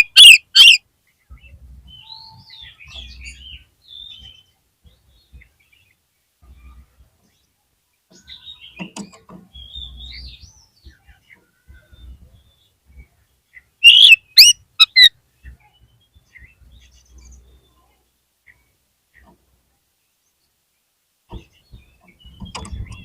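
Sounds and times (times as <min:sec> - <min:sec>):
sharp sweeping bird whistles: 0:13.8 - 0:15.0
bird singing whistled phrases: 0:13.8 - 0:15.1.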